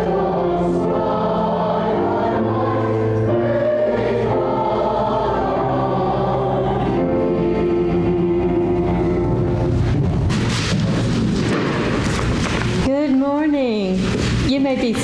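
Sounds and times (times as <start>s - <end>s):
congregation singing a hymn: 0.0s - 10.0s.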